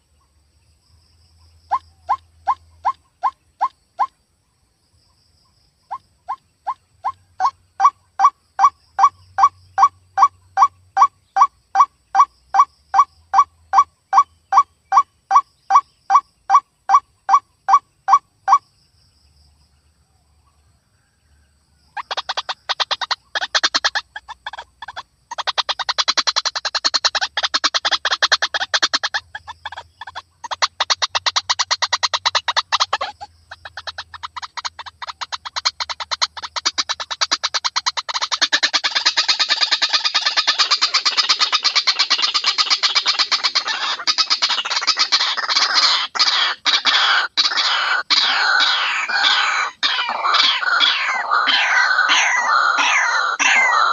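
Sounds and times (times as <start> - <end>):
waterhen calling: 22.0 - 53.9.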